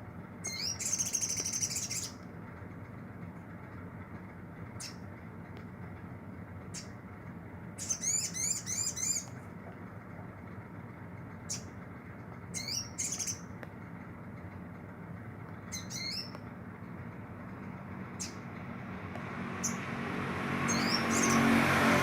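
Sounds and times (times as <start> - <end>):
low hum: 0.0 - 22.0
sunbird chirping and twittering: 0.4 - 2.2, 7.8 - 9.3, 12.5 - 13.5, 15.6 - 16.3, 18.1 - 18.5, 19.5 - 19.9, 20.6 - 21.6.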